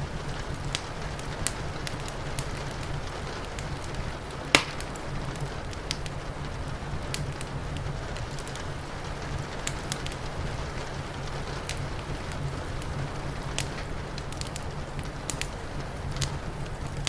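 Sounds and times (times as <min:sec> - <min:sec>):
rain: 0:00.0 - 0:17.0
wood fire crackling: 0:00.0 - 0:17.0
sharp loud crack: 0:04.5 - 0:05.0.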